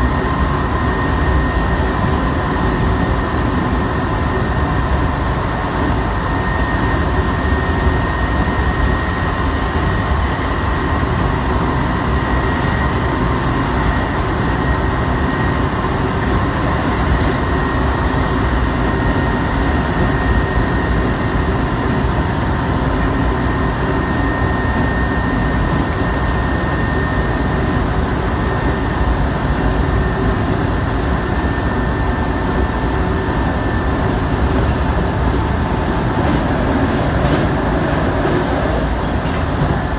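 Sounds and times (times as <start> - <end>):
faint high whine: 0.0 - 36.9
train wheels rumbling: 0.0 - 39.9.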